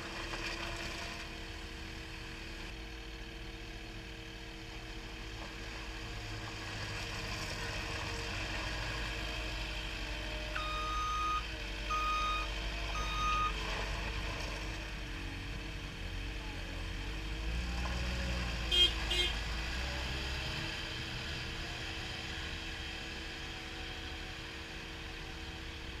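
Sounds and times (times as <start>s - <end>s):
diesel engine running: 0.0s - 26.0s
backup alarm beeping: 10.6s - 13.6s.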